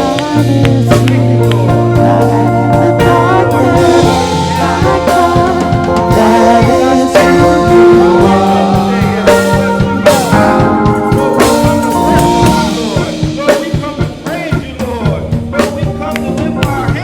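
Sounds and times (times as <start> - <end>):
drum kit: 0.0 - 17.0
gospel band playing: 0.0 - 17.0
low bass line: 0.0 - 17.0
person singing: 0.0 - 17.0.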